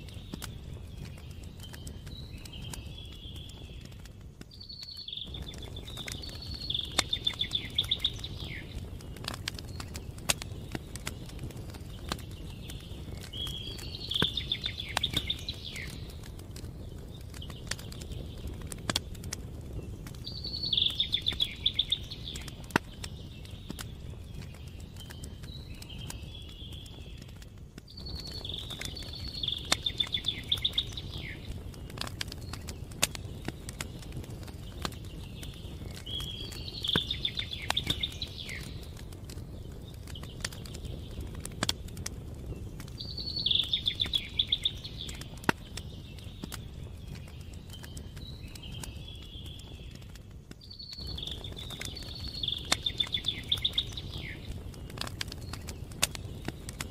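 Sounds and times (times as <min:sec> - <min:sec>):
campfire crackling and popping: 0:00.0 - 0:56.9
songbird trilling: 0:50.8 - 0:54.5.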